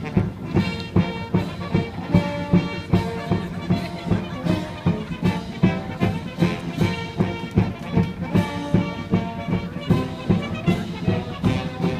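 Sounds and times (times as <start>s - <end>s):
brass band music: 0.0s - 11.9s
fast drum beat: 0.0s - 11.9s.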